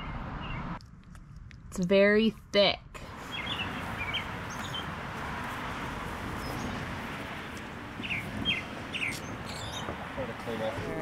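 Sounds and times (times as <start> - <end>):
small birds chirping: 3.1 - 11.0.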